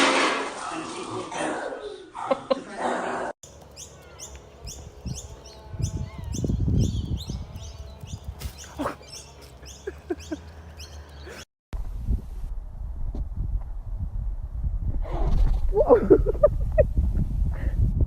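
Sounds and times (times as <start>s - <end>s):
low thumps and rumble: 11.8s - 18.0s.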